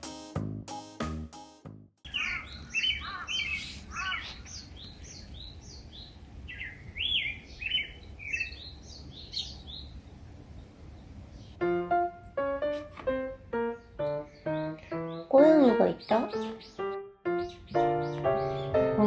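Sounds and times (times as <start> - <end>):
bird singing whistled notes: 2.1 - 9.9, 13.7 - 19.0.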